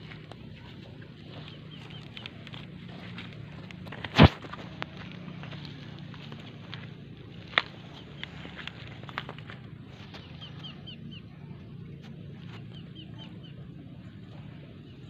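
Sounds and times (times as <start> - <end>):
bird chirping: 0.0 - 3.8, 7.4 - 15.0
steady low hum: 0.0 - 15.0.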